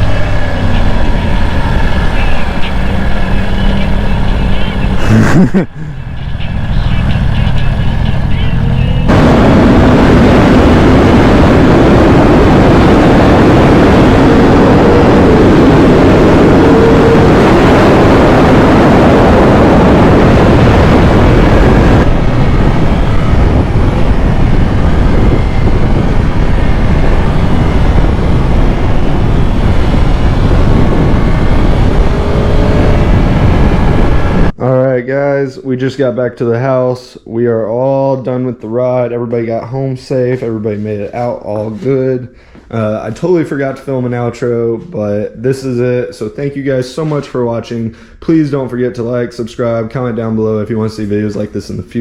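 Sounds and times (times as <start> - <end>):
motorcycle engine running: 0.0 - 5.2, 5.8 - 34.5
loud steady rushing noise: 0.0 - 34.6.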